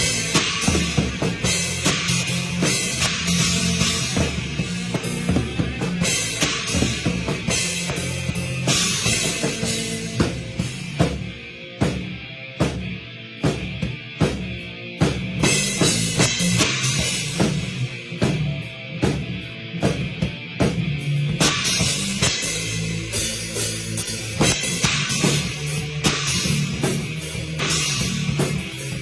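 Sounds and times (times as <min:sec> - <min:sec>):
cymbal crashes: 0:00.0 - 0:11.3
kick and snare drum beat: 0:00.0 - 0:22.3
rock band playing: 0:00.0 - 0:29.0.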